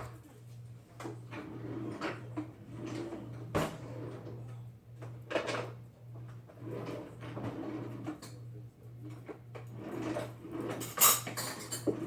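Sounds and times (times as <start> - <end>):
kitchen drawer opening: 1.0 - 4.6, 6.5 - 8.4, 9.1 - 12.0
kitchen knocks and clatters: 9.1 - 12.0.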